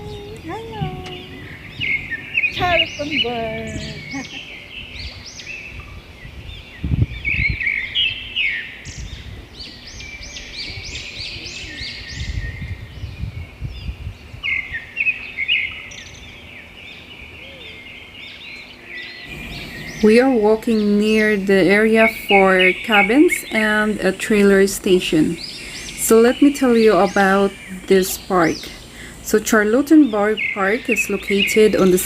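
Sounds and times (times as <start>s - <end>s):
low rumble: 0.0s - 5.2s, 19.3s - 22.0s
songbirds chirping: 0.0s - 32.0s.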